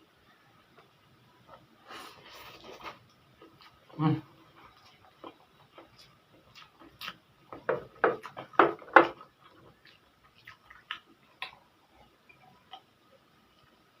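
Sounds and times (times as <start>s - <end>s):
wet chewing clicks and smacks: 4.7s - 7.2s, 8.0s - 11.6s.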